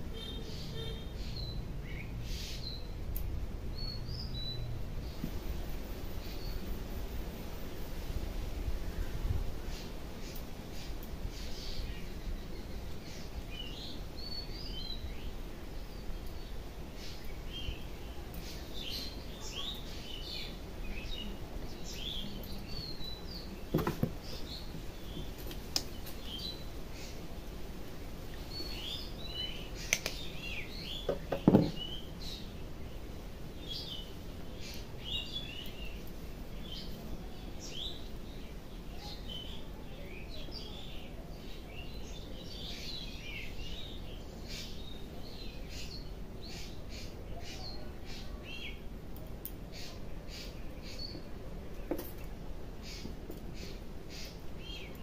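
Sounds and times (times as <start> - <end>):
small birds chirping: 0.0 - 55.0
brief knocks: 31.1 - 31.8.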